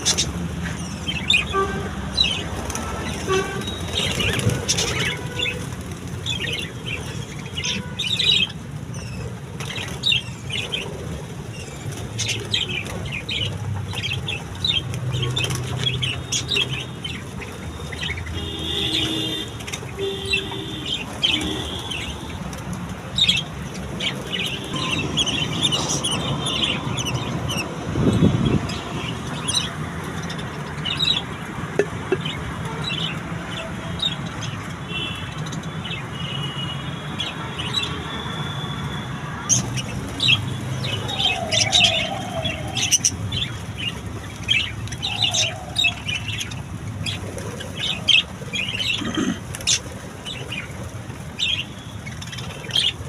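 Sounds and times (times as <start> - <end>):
budgerigars chirping and chattering: 0.0 - 10.9, 23.2 - 31.4, 39.4 - 50.7, 51.4 - 53.0.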